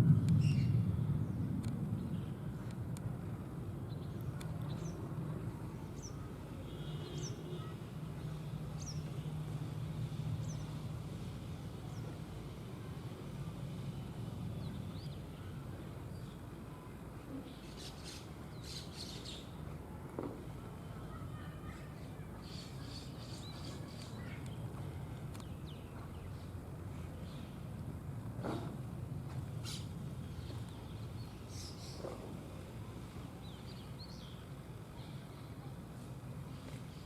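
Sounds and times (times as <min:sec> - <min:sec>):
steady low rumble: 0:00.0 - 0:06.5.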